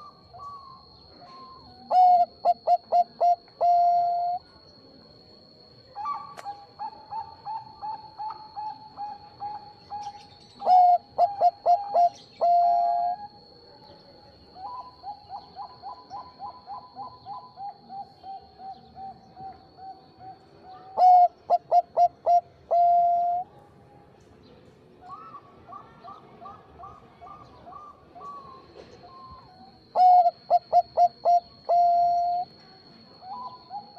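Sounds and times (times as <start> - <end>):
dove cooing: 0.0 - 4.4, 6.0 - 13.3, 14.6 - 23.4, 25.1 - 32.5, 33.2 - 33.9.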